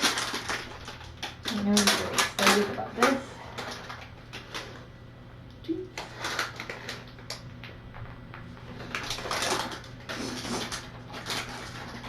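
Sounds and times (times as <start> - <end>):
low electrical hum: 0.0 - 12.0
knocks and clatters of handling: 6.0 - 12.0.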